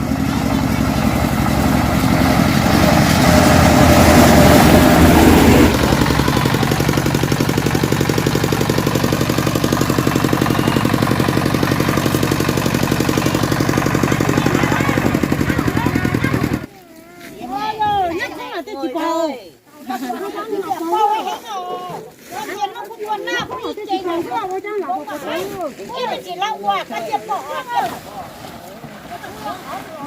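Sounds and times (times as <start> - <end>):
small engine running: 0.0 - 16.7.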